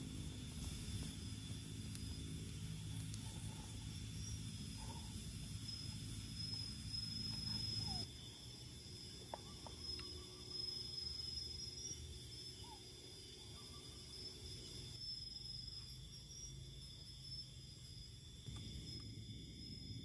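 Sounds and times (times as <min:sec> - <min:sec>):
insects chirring: 0:00.0 - 0:20.0
low rumbling background: 0:14.6 - 0:20.0.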